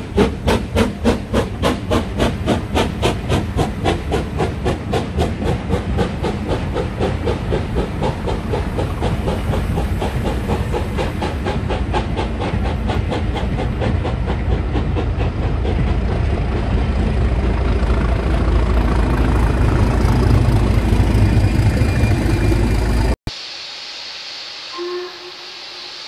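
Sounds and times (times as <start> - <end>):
steam locomotive chuffing: 0.0 - 23.2
diesel engine rumble: 0.1 - 23.2.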